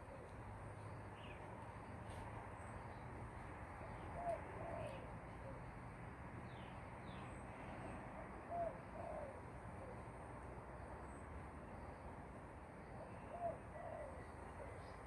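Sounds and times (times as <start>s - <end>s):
bird cooing: 0.0s - 0.3s, 3.9s - 5.7s, 8.5s - 10.1s, 12.9s - 14.9s.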